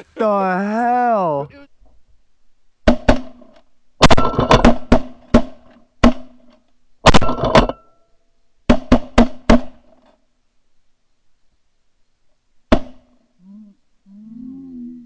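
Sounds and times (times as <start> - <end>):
shotgun blasts: 4.0 - 6.3.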